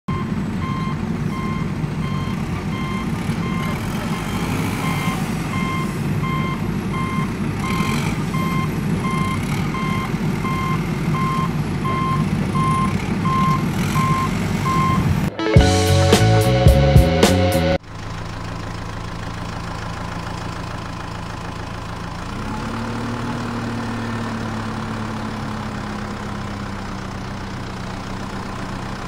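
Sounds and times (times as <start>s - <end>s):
reversing alarm beeping: 0.1s - 15.1s
truck engine rumble: 0.1s - 29.0s.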